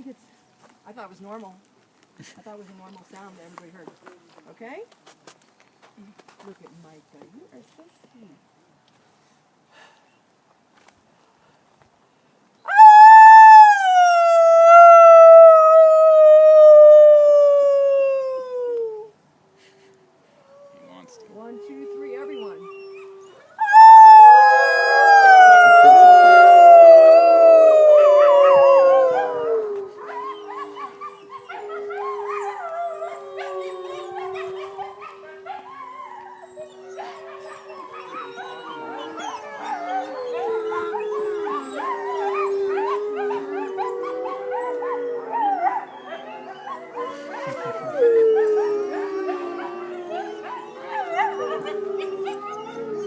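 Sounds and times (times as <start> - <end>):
wolves howling in chorus: 20.6 - 53.0.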